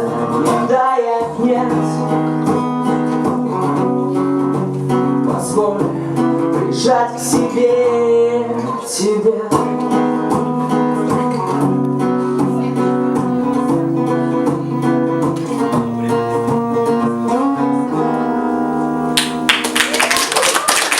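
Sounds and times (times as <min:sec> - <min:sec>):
acoustic guitar strumming: 0:00.0 - 0:19.7
people clapping: 0:19.2 - 0:20.9.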